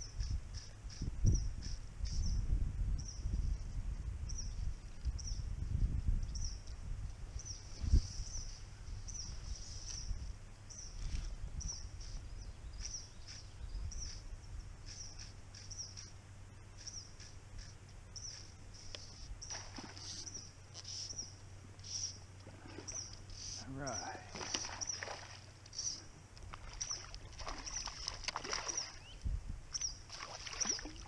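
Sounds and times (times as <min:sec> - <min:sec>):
wind rumbling on microphone: 0:00.0 - 0:16.2, 0:16.8 - 0:31.0
bird chirping: 0:11.6 - 0:30.8.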